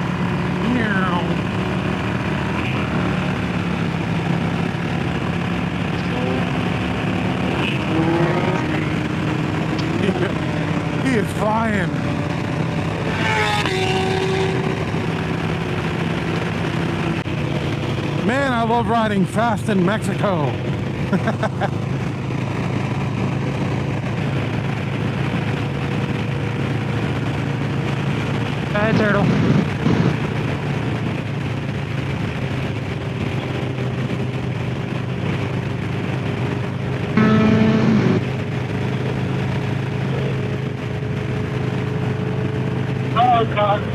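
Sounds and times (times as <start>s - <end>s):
motorcycle engine drone: 0.0s - 43.9s
motorcycle engine revving: 0.0s - 43.9s
wind noise: 20.5s - 43.2s.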